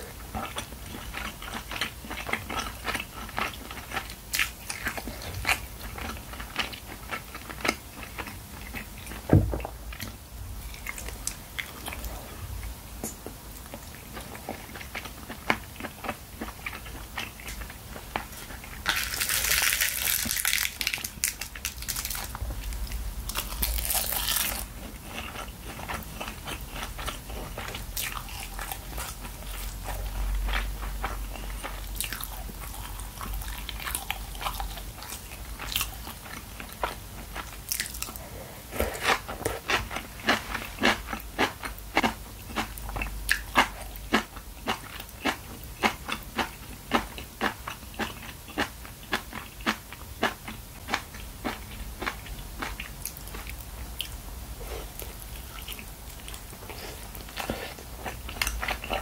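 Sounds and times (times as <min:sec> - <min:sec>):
wet crunchy chewing: 0:13.6 - 0:38.2, 0:38.8 - 0:59.0.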